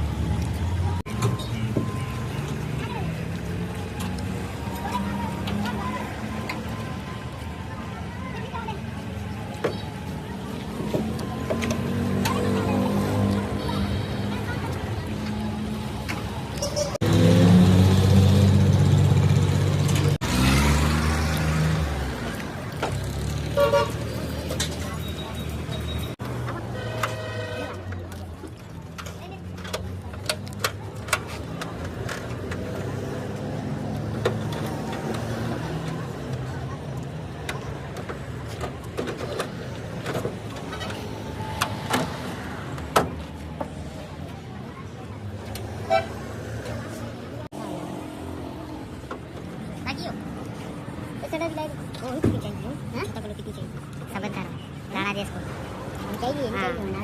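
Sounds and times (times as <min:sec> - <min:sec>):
car engine accelerating: 0:17.0 - 0:23.5.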